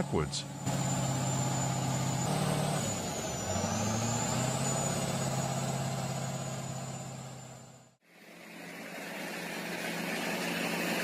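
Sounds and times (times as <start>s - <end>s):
heavy diesel engine under load: 0.0s - 8.0s
thin high whine: 0.0s - 11.0s.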